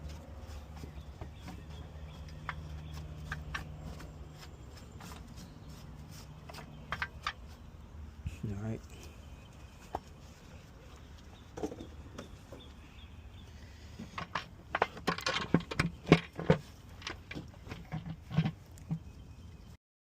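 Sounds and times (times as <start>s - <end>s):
clicks and knocks of hard parts: 14.0s - 18.9s.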